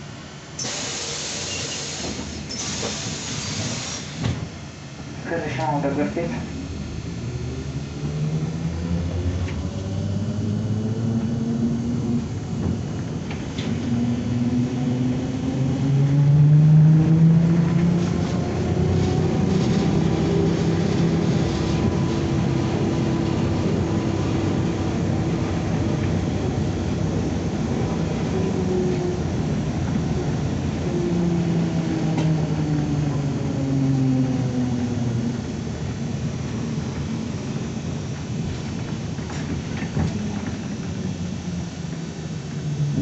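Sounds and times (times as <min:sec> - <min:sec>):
trolleybus body rumbling: 0:00.0 - 0:43.0
trolleybus motor whining: 0:06.0 - 0:43.0.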